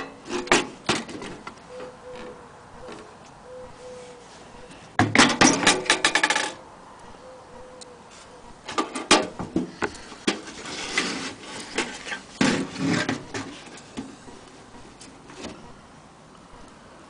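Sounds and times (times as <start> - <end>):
scraping rubs: 9.9 - 14.3.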